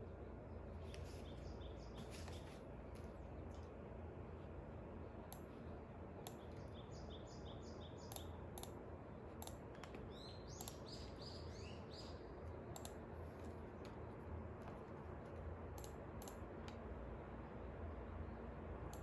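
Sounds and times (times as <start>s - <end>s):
low steady hum: 0.0s - 19.0s
small bird chirping: 6.3s - 8.4s, 9.8s - 12.3s
light clicks: 8.1s - 8.8s, 9.4s - 10.9s, 12.7s - 13.0s, 15.8s - 16.8s.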